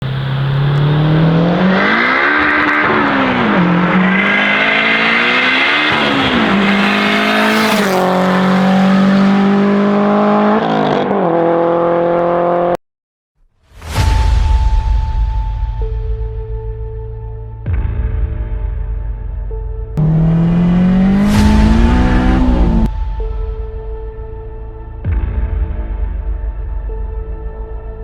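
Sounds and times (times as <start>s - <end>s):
car engine revving under load: 0.0s - 12.8s, 20.0s - 22.9s.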